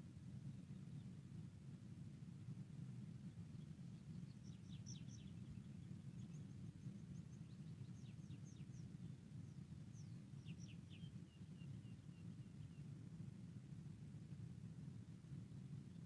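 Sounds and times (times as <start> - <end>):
faint bird chirps: 3.5 - 13.0.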